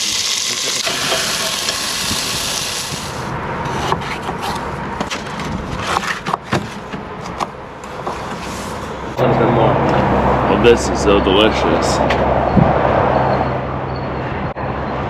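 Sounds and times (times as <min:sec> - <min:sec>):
fish sizzling in oil: 0:00.0 - 0:03.3.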